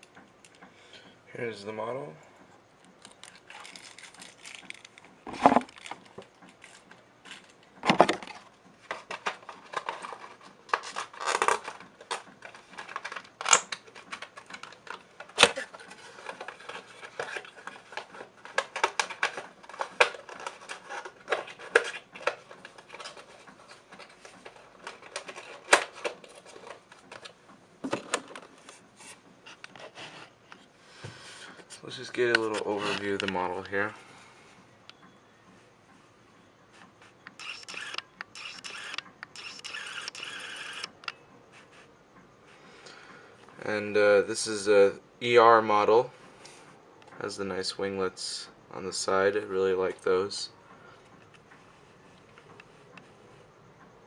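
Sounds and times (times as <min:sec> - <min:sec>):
packaging rustling: 0:03.0 - 0:28.8.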